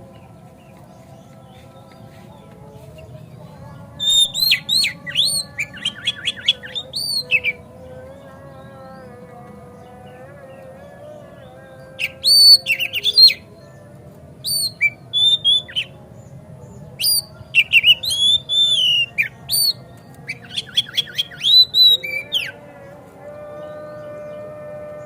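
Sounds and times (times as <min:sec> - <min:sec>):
bird singing whistled phrases: 0:04.0 - 0:07.6, 0:12.0 - 0:13.4, 0:14.4 - 0:15.9, 0:17.0 - 0:22.5.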